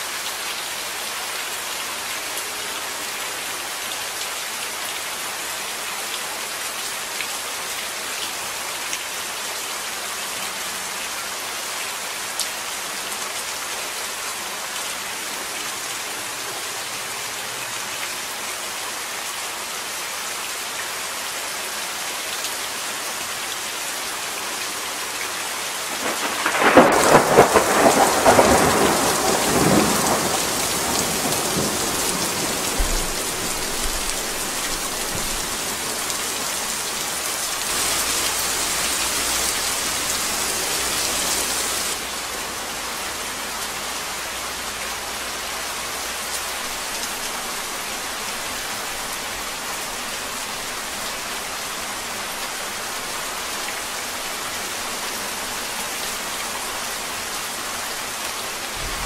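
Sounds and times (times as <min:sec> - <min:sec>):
steady rain: 0:00.0 - 0:59.0
thunder crack and rumble: 0:25.9 - 0:35.8, 0:58.7 - 0:59.0.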